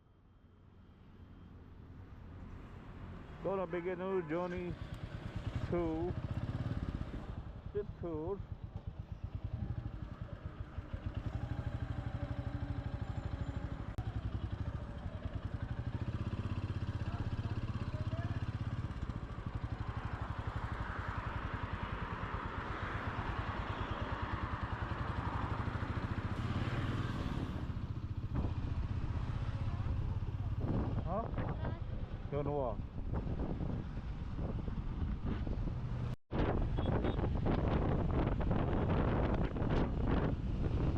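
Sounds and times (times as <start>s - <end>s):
rushing wind noise: 30.6s - 31.9s, 32.8s - 40.9s.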